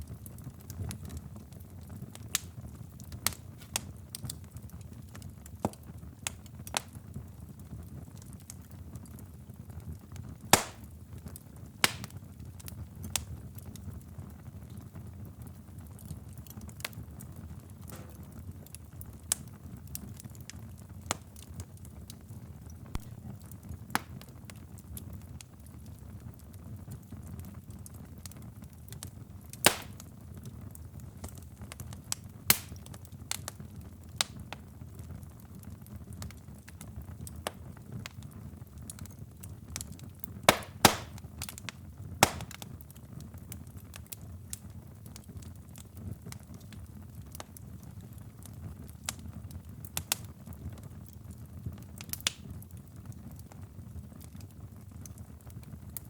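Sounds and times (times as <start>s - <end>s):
wood fire crackling: 0.0s - 56.0s
sharp pops of burning wood: 2.1s - 7.2s, 10.1s - 13.9s, 15.9s - 25.0s, 28.2s - 34.7s, 35.8s - 48.1s, 48.8s - 50.6s, 52.0s - 52.6s.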